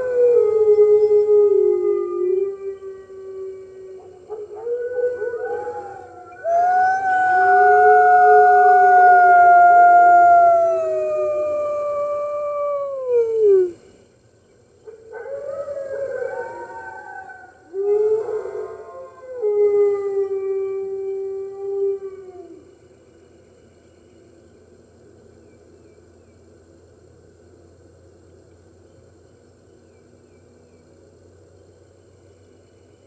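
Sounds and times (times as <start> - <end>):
wolves howling: 0.0 - 13.8, 15.0 - 22.7.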